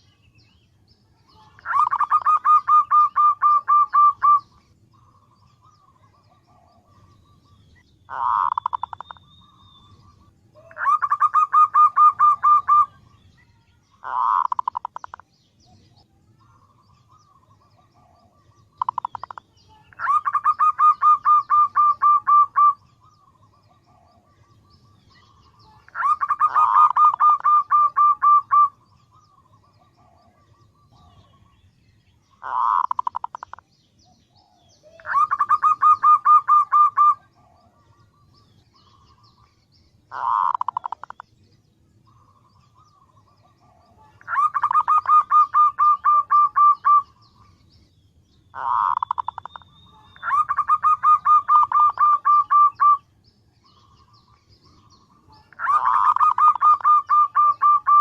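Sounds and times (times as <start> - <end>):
dove cooing in pulsed runs: 1.6 - 4.5, 10.7 - 13.0, 20.0 - 22.8, 25.9 - 28.7, 32.4 - 33.6, 35.0 - 37.6, 40.1 - 41.2, 43.4 - 47.1, 48.6 - 49.5, 50.2 - 53.0, 55.5 - 58.0.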